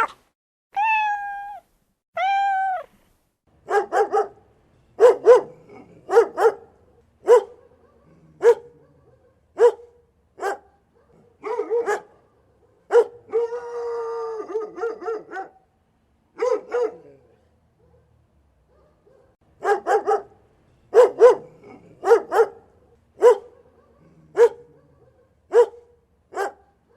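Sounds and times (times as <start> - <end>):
dog barking: 3.6 - 4.4, 5.0 - 13.6, 14.5 - 15.7, 16.4 - 26.9.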